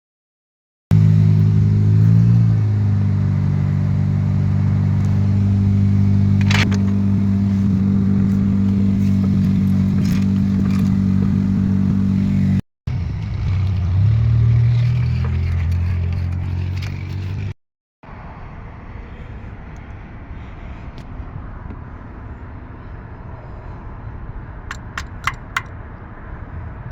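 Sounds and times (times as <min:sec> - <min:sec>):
car engine running and revving: 0:00.9 - 0:18.3.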